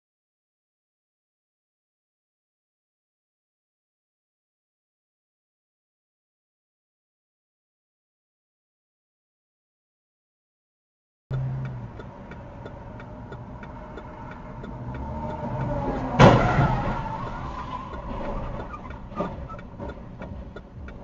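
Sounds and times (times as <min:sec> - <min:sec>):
faint regular ticking: 0:11.3 - 0:16.1, 0:17.2 - 0:21.0
vehicle engine and road noise: 0:11.3 - 0:21.0.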